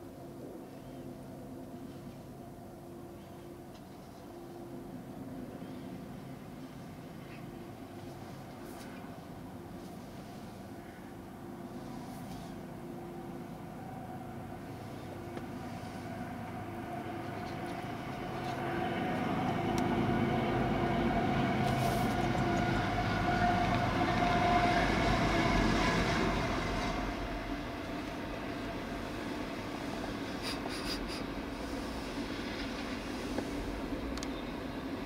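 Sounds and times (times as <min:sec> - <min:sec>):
diesel locomotive passing: 0:00.0 - 0:35.0
freight cars rolling: 0:14.1 - 0:35.0
train wheel clicks: 0:21.6 - 0:22.8.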